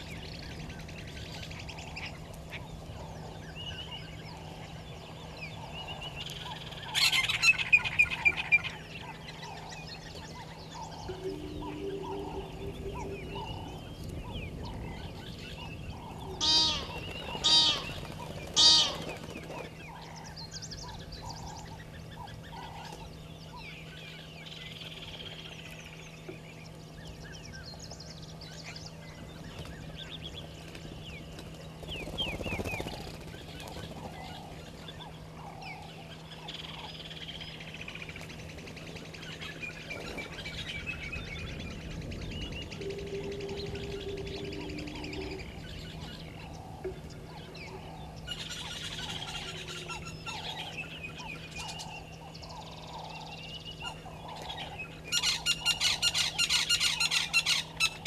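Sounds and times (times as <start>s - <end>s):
faint steady hum: 0.0s - 58.0s
small birds chirping: 0.0s - 58.0s
loud honking bird calls: 10.6s - 14.2s, 16.3s - 19.2s.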